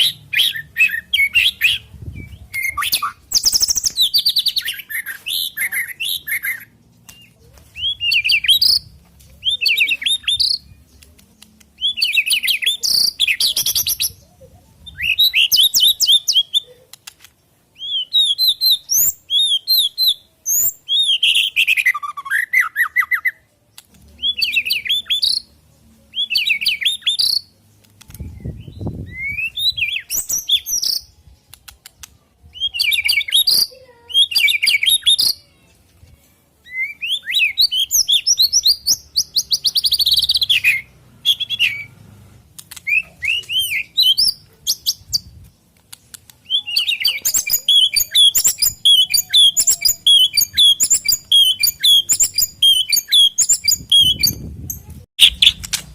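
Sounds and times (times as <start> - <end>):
bird singing whistles: 0.0 - 10.7, 14.8 - 16.6, 17.8 - 23.4, 26.2 - 27.5, 28.3 - 31.2, 32.5 - 35.4, 36.6 - 41.9, 42.8 - 45.3, 46.4 - 54.5.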